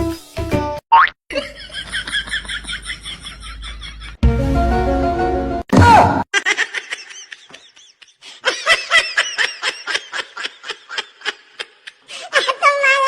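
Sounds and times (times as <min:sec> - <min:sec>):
music: 0:00.0 - 0:00.8, 0:04.2 - 0:05.6
high-pitched laughter: 0:06.3 - 0:13.0.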